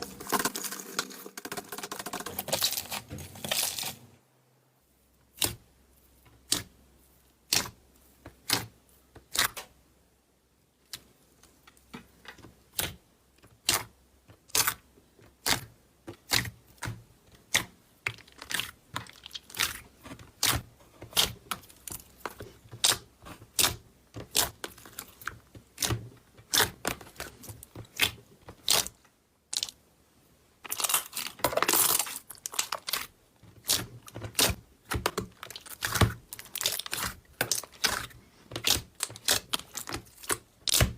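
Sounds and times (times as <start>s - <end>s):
slime crackling squish: 15.4s - 29.8s, 30.6s - 40.9s.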